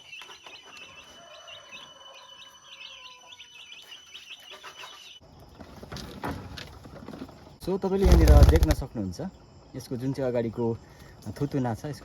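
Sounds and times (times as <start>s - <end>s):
quail chirping: 8.0s - 8.8s.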